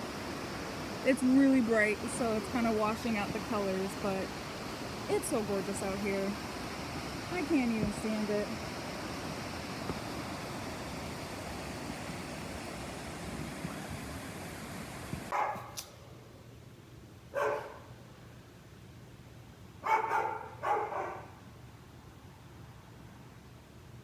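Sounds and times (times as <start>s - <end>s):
dog barking: 15.3s - 15.8s, 17.3s - 17.9s, 19.8s - 21.4s.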